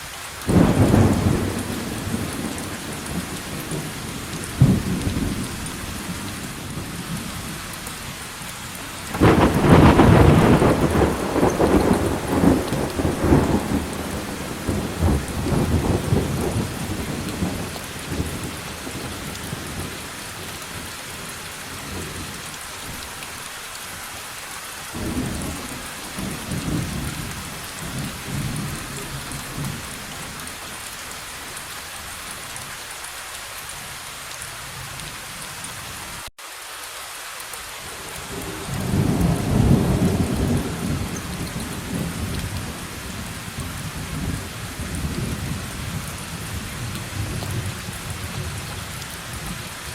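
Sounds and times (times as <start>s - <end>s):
steady rain: 0.0s - 49.9s
thunder rolling: 0.5s - 5.5s, 9.1s - 19.9s, 25.0s - 29.9s, 38.4s - 48.6s.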